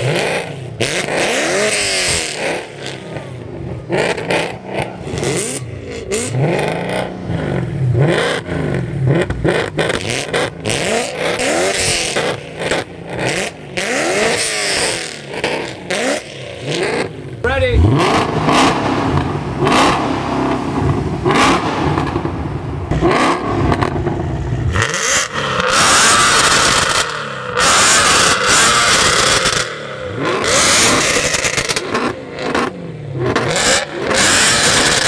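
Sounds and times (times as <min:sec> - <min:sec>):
car engine revving: 0:00.0 - 0:35.0
exhaust pops: 0:16.7 - 0:29.6.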